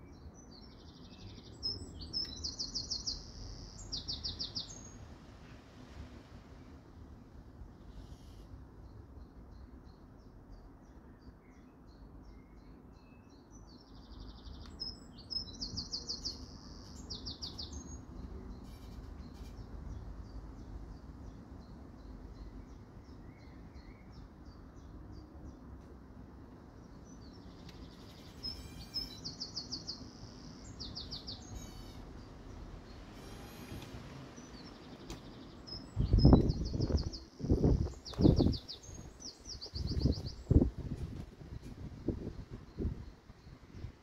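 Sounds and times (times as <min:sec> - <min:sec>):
soft bird chirps: 0:26.9 - 0:40.7
songbird trilling: 0:27.4 - 0:32.3, 0:33.0 - 0:40.4.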